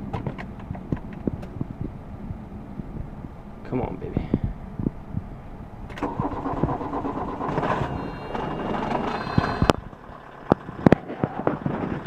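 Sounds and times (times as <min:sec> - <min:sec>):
diesel engine starting and running: 0:04.5 - 0:12.0.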